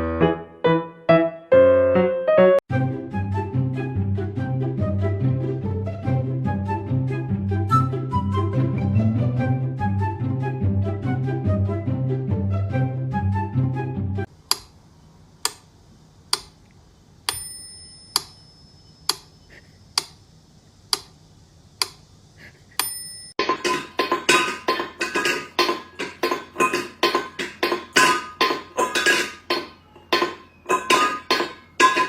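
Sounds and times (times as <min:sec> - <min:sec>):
short bell ring: 0:17.3 - 0:18.9.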